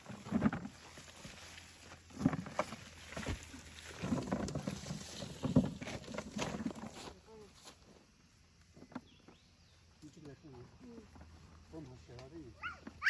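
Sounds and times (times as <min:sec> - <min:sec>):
knocks and thumps from handling: 0:02.1 - 0:07.0.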